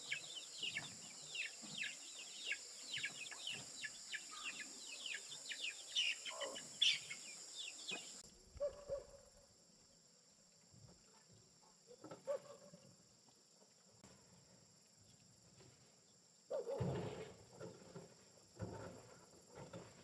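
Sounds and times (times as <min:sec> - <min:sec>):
birds chirping: 0:00.0 - 0:08.2.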